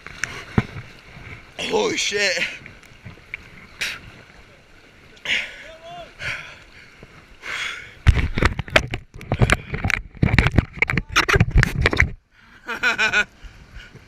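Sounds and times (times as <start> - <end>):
kayak knocking: 0.0 - 4.2, 8.0 - 12.2
crashing water: 0.0 - 12.2
person breathing: 5.2 - 8.0.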